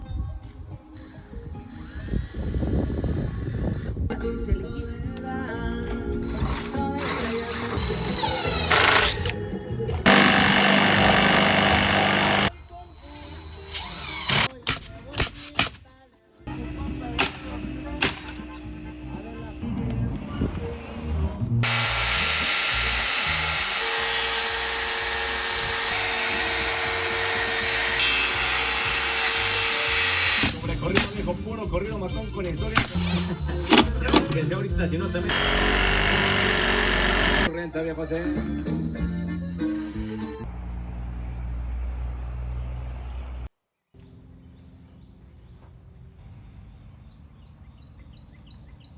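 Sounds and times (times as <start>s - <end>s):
outdoor background: 0.0s - 48.9s
power drill running: 7.0s - 9.4s, 10.0s - 12.5s, 16.5s - 19.7s, 21.6s - 30.6s, 35.3s - 37.5s
steady whine: 16.5s - 23.0s
steady low rumble: 18.6s - 21.6s
birds chirping: 44.0s - 48.9s.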